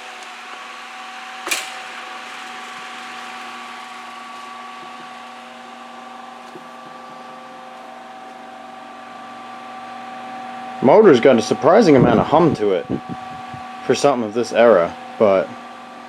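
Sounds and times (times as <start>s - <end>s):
table fan air rush: 0.0s - 6.0s
electrical motor hum: 0.0s - 14.0s.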